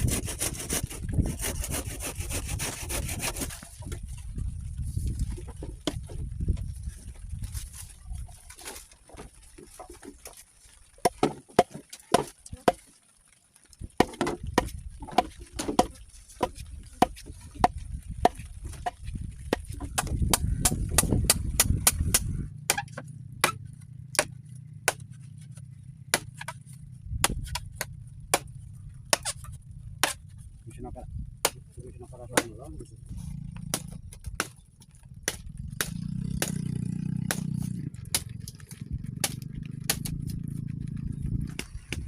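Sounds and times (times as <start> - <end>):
tool striking wood: 19.5 - 23.6.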